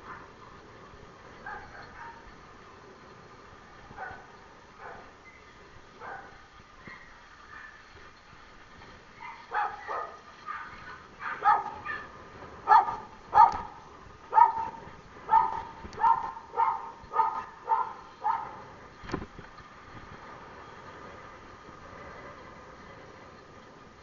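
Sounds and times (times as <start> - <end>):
dog barking: 1.4 - 2.2, 4.0 - 5.1, 6.0 - 7.8, 9.2 - 18.6.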